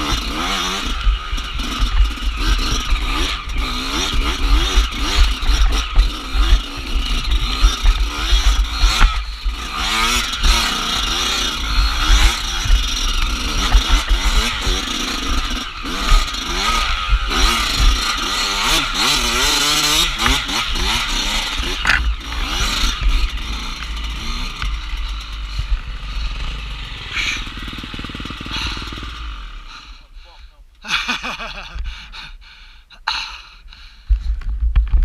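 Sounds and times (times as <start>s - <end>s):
dirt bike engine revving: 0.0s - 31.8s
low rumble: 19.9s - 30.8s.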